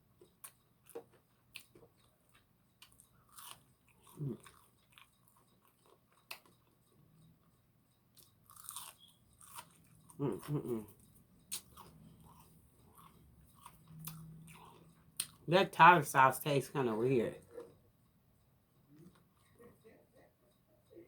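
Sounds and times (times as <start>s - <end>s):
chewing crisp fried food: 0.0s - 15.5s.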